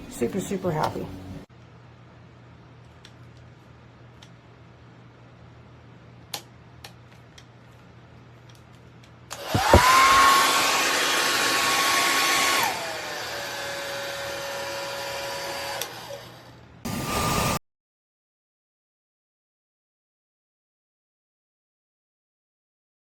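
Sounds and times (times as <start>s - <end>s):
hair dryer whine: 9.3s - 17.6s.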